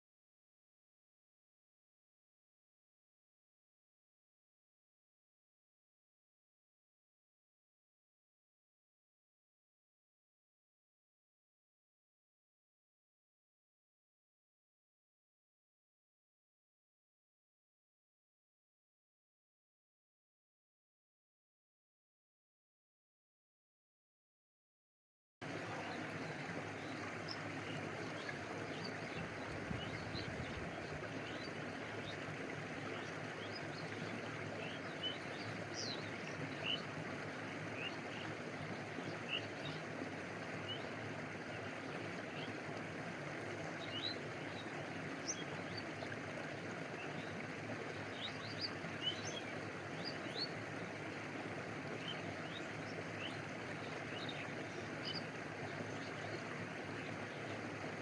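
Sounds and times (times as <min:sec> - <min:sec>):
stream water flowing: 0:25.4 - 0:58.0.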